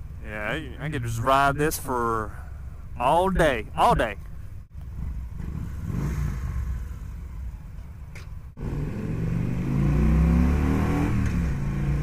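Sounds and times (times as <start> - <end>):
motorcycle engine accelerating: 4.7 - 12.0.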